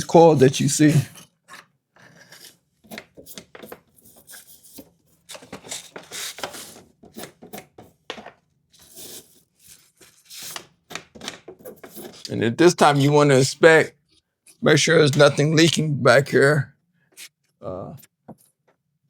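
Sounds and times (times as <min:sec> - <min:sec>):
brush scraping refrigerator coils: 0:00.0 - 0:07.9, 0:08.7 - 0:10.8, 0:11.5 - 0:15.8.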